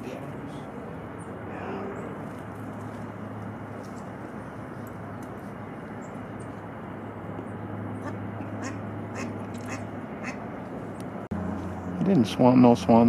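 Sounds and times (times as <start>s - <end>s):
steady low hum: 0.0s - 13.0s
birds calling sharply: 7.4s - 11.0s.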